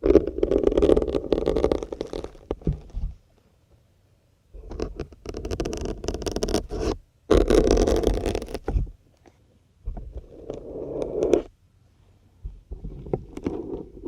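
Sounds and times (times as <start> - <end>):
syringes scraping out of foam: 0.0 - 2.6, 4.8 - 8.8, 10.2 - 11.5.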